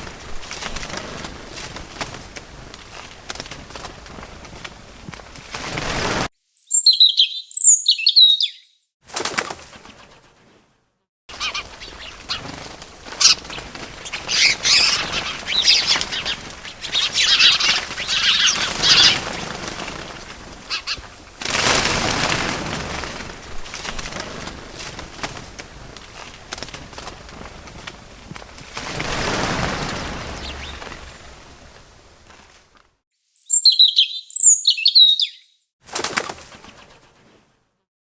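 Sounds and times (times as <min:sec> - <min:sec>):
wings flapping: 0:00.0 - 0:06.3, 0:09.0 - 0:10.6, 0:11.3 - 0:32.9, 0:35.8 - 0:37.5
birds chirping: 0:06.4 - 0:08.8, 0:11.3 - 0:21.4, 0:28.8 - 0:32.5, 0:33.2 - 0:35.6.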